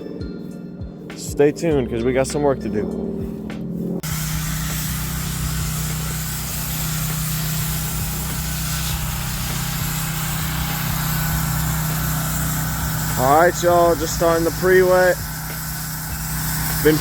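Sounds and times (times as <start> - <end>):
pressure washer engine hum: 1.7 - 17.0
water jet hissing: 4.0 - 17.0.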